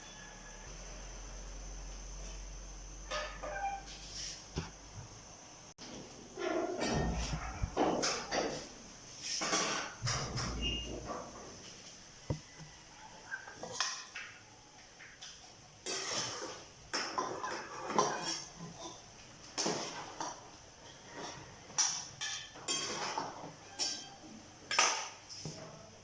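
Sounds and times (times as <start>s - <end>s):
utensil scraping a pan: 15.9s - 19.0s.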